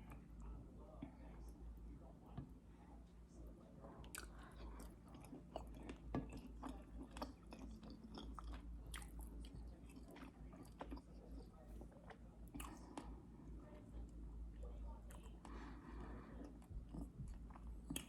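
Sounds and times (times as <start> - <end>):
low steady hum: 0.0 - 18.0
person chewing food: 4.0 - 13.2, 13.8 - 18.0.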